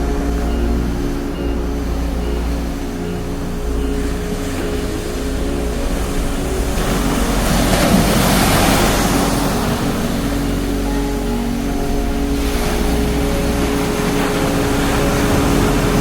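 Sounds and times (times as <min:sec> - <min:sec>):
steady low hum: 0:00.0 - 0:16.0
surf washing on beach: 0:04.2 - 0:16.0.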